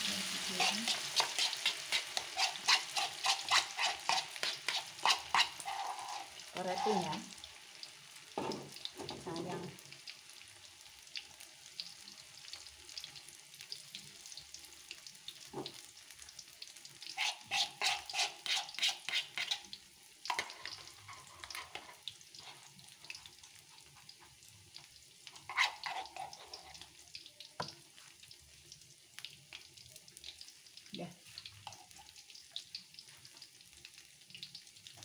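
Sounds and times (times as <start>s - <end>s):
batter deep-frying in hot oil: 0.0s - 35.0s.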